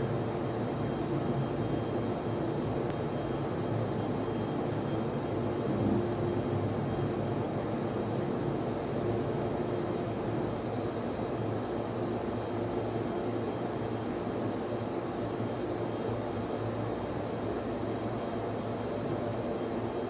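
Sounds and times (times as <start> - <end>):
server cooling fans humming: 0.0 - 1.5, 17.4 - 20.0
faint thin whine: 0.0 - 7.5, 15.8 - 20.0.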